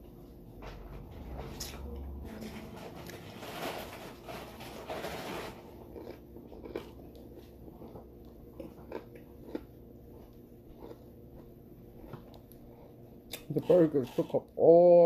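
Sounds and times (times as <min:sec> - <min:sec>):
person chewing crunchy food: 0:04.8 - 0:14.5.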